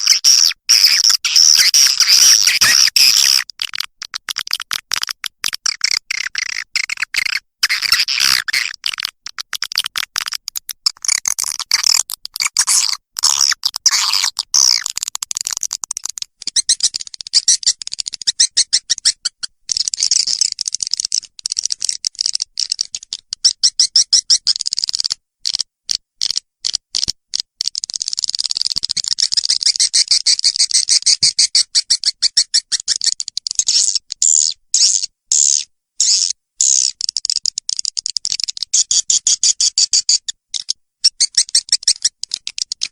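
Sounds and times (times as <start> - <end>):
recorded swiftlet twittering chirps: 0.0 - 20.5, 38.8 - 42.1.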